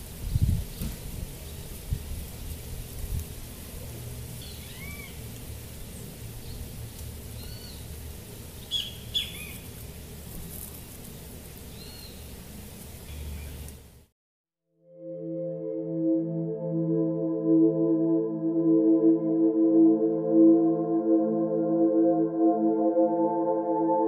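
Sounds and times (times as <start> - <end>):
small birds chirping: 8.6 - 9.7, 11.7 - 12.4, 13.0 - 13.7.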